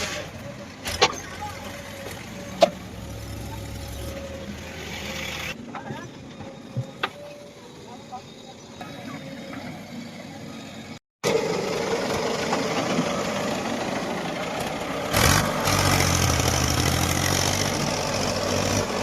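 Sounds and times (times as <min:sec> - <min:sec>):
heavy diesel machinery: 0:00.0 - 0:19.0.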